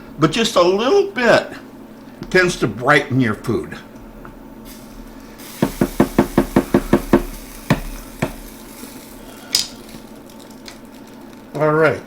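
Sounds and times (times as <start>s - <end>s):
light taps of pepper shaker: 5.6s - 11.5s.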